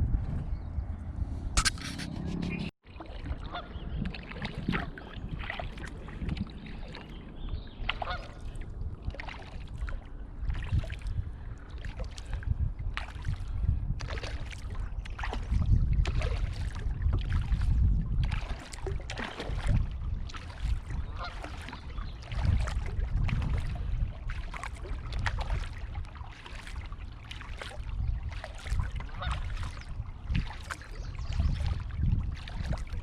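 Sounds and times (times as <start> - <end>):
low rumble near water: 0.0 - 33.0
honking bird calls: 3.4 - 3.9, 7.9 - 8.5.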